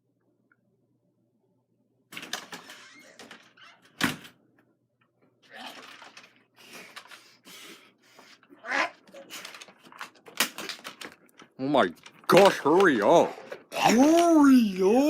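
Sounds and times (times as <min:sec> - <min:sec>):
rustling and scraping handling noise: 0:08.1 - 0:14.5.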